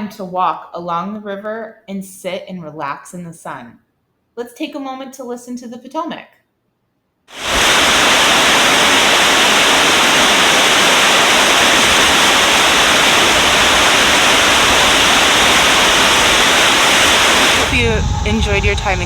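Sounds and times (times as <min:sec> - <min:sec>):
river rushing: 0:07.3 - 0:17.8.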